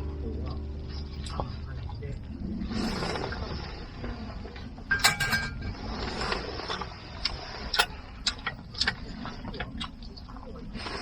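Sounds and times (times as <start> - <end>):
brief metallic ring: 4.9 - 5.7.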